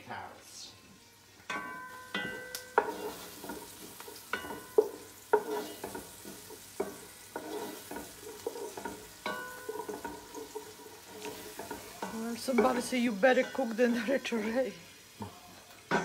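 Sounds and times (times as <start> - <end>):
onion and garlic sizzling in oil: 0.1 - 16.0
spoon clanking against pot: 1.5 - 12.8.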